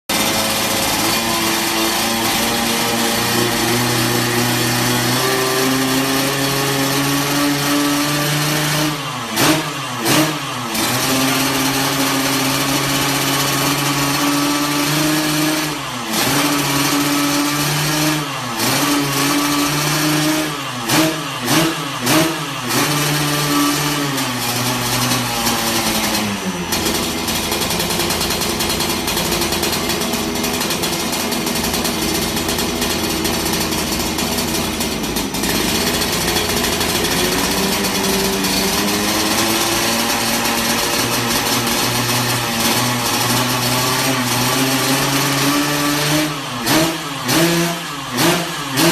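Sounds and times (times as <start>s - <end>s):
two-stroke engine revving: 0.0s - 48.9s
engine idling: 24.3s - 45.9s.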